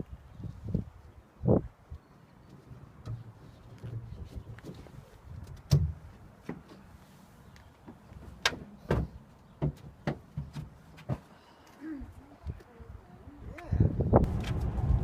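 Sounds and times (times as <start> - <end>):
sharp knocks and clunks: 8.4 - 11.2.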